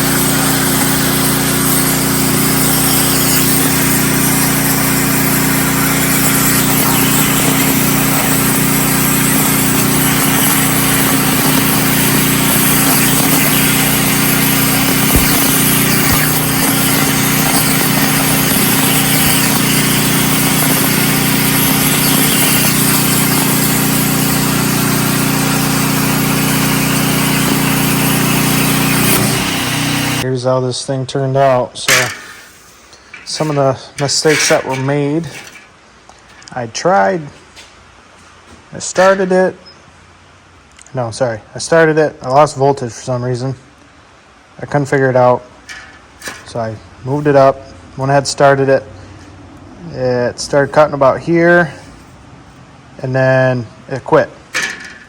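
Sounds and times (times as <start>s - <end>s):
plasma cutter hissing: 0.0s - 30.2s, 31.4s - 35.7s
generator engine drone: 0.0s - 30.3s.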